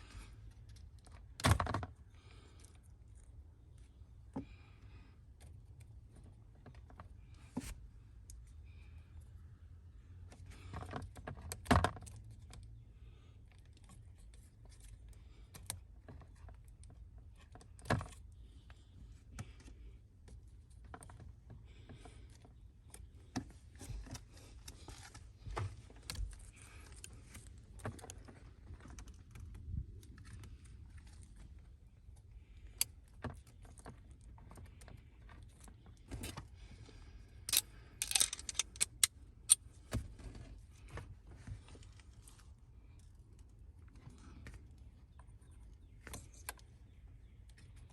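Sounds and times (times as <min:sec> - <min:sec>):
tools clicking and clinking: 0:37.5 - 0:39.6
jangling clinks: 0:38.0 - 0:39.0.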